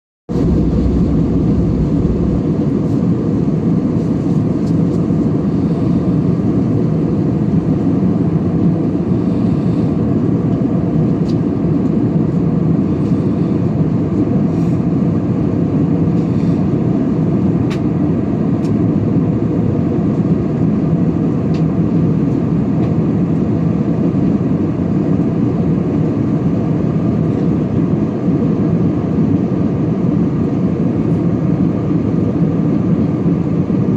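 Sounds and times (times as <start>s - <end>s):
airplane cabin engine rush: 0.3s - 33.9s.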